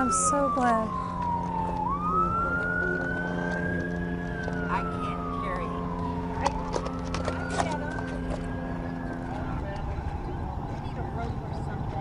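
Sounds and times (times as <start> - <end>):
emergency vehicle siren wailing: 0.0 - 12.0.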